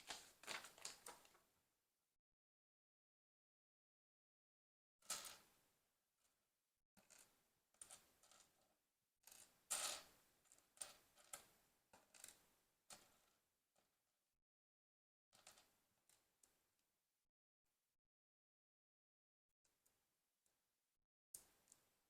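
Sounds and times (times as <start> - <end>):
plastic packaging rustling: 0.0 - 1.4.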